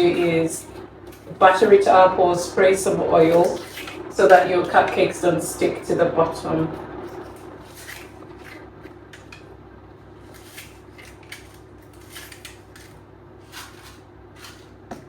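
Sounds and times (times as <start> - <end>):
steady low hum: 0.0 - 15.0
utensils scraping and clicking: 3.2 - 5.0, 7.0 - 9.5, 10.2 - 15.0.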